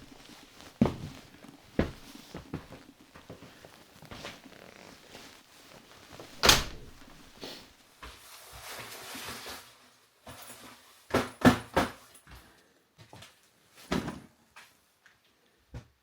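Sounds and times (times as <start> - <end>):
rustling: 0.0 - 8.8
heavy thump: 6.3 - 7.5
quick knocks: 6.3 - 7.5.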